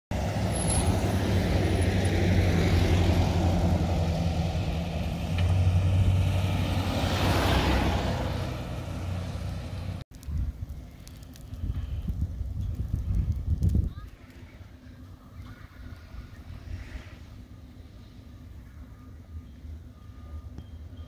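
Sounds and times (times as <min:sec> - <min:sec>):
gusty wind buffeting microphone: 0:09.8 - 0:18.7.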